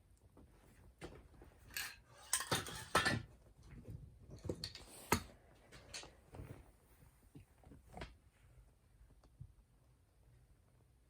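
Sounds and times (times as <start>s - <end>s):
metal tools clicking and scraping: 1.7s - 3.2s.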